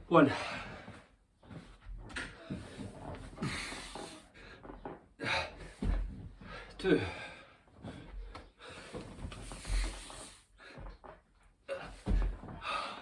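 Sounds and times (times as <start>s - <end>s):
man breathing hard: 3.4s - 4.6s, 5.2s - 11.0s, 11.7s - 13.0s
body thudding on floor: 5.6s - 6.4s, 11.8s - 12.7s.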